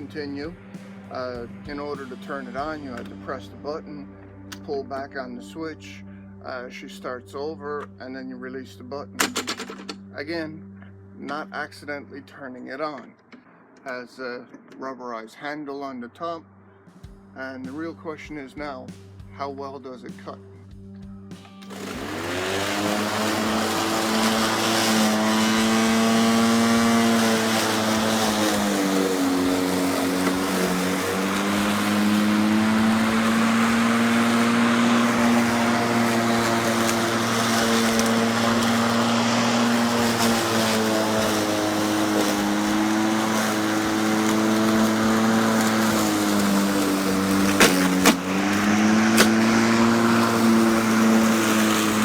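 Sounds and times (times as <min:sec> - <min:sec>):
electric lawnmower whining: 0:00.0 - 0:03.8, 0:09.2 - 0:11.4, 0:21.3 - 0:52.0.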